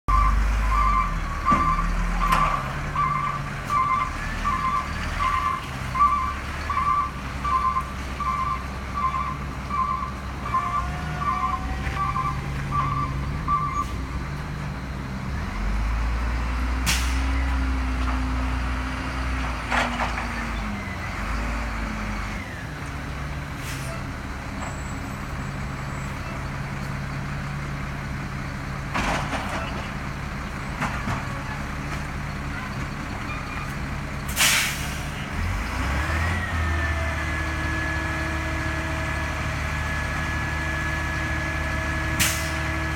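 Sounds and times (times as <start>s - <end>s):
truck diesel engine: 0.0s - 42.9s
sharp hisses or clanks: 34.3s - 35.1s.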